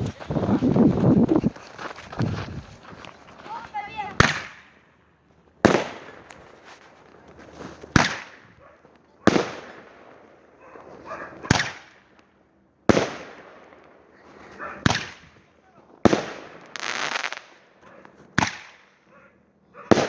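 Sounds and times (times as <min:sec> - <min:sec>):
fireworks bangs: 0:03.5 - 0:04.7, 0:05.6 - 0:07.2, 0:07.8 - 0:08.5, 0:09.3 - 0:10.5, 0:12.9 - 0:13.8, 0:16.0 - 0:17.6.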